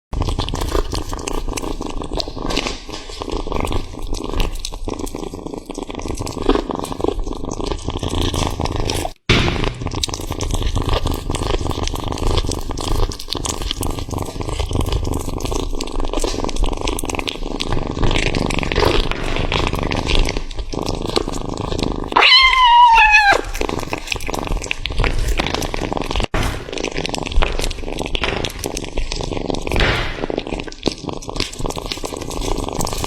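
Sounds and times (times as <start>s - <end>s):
cat chewing food: 0.2s - 9.3s, 9.9s - 33.0s
cat meowing: 22.2s - 23.8s.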